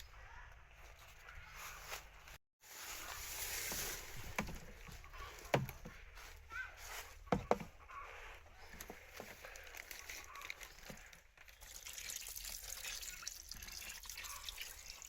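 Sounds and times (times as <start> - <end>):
rustling and splashing in water: 1.6 - 14.9.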